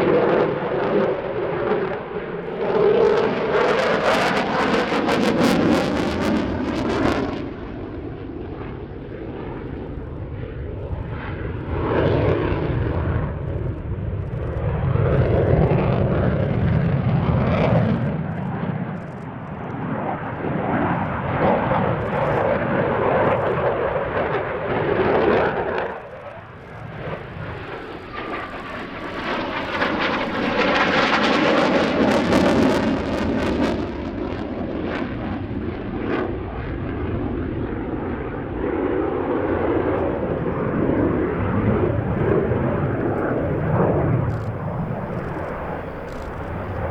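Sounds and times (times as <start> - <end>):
fighter jet roar: 19.6 - 35.6, 38.1 - 46.9.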